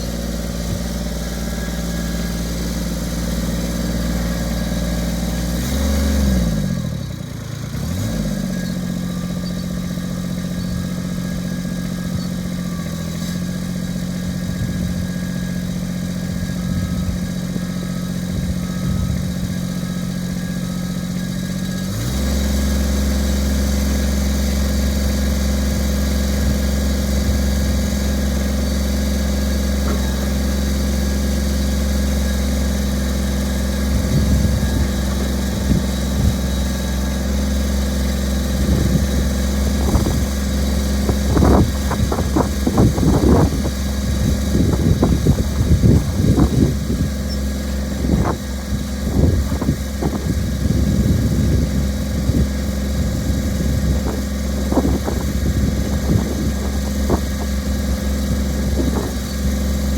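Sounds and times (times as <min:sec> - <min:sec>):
diesel tractor engine running: 0:00.0 - 0:59.9
clunks and knocks: 0:29.8 - 0:30.3, 0:54.0 - 0:57.8, 0:58.4 - 0:59.7.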